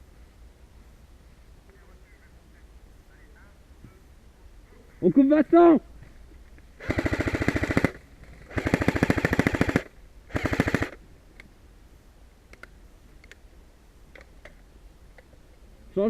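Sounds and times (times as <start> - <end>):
airsoft rifle firing full auto: 6.8 - 11.0.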